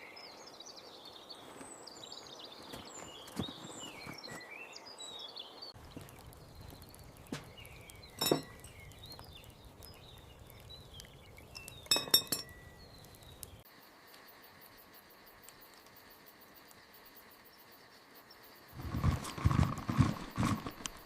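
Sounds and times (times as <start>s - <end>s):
faint high chirping: 0.0s - 15.9s
light clinks: 8.1s - 9.0s, 11.4s - 12.8s.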